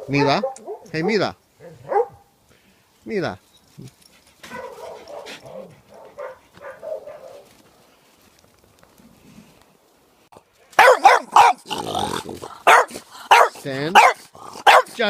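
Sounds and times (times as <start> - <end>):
dogs barking sharply: 0.0 - 2.3, 4.4 - 7.5, 10.7 - 15.0.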